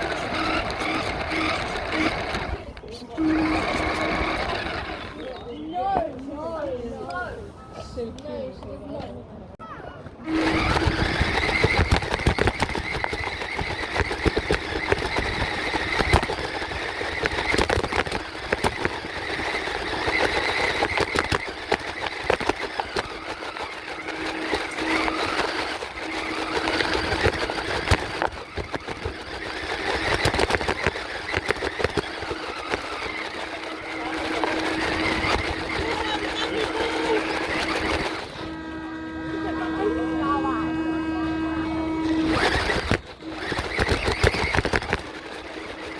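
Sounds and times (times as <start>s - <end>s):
rc truck motor whine: 0.0s - 6.0s, 10.2s - 45.9s
clatter of small clicks: 10.3s - 38.6s, 42.0s - 45.9s.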